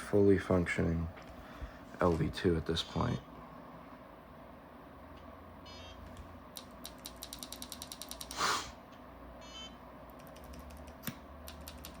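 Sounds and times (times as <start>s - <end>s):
mechanical clicks: 6.1s - 8.3s, 10.1s - 12.0s
breathy puff: 8.3s - 8.8s.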